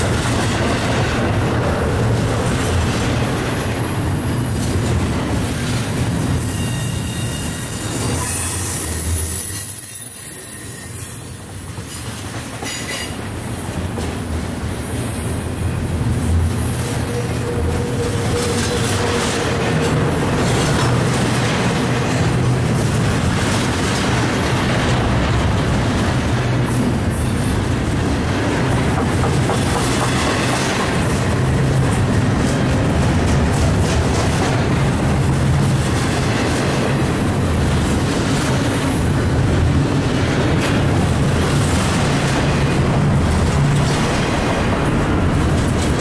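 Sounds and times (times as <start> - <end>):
freight train wheels rumbling: 0.0 - 46.0
high wheel squeal: 3.7 - 12.0, 15.8 - 19.7
clicking at rail joints: 17.1 - 26.4, 28.0 - 39.2, 40.0 - 46.0.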